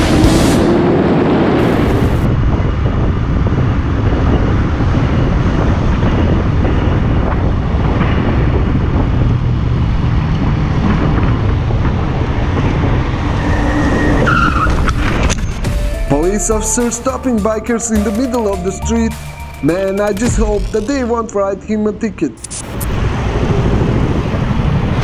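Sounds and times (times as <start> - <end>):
wind rushing over microphone: 0.0 - 15.7, 22.8 - 25.0.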